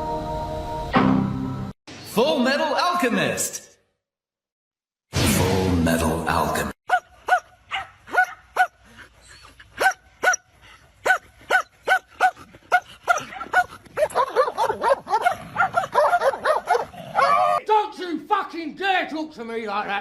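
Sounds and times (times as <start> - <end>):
dog barking in high yaps: 6.9 - 8.8, 9.8 - 10.4, 11.0 - 17.6.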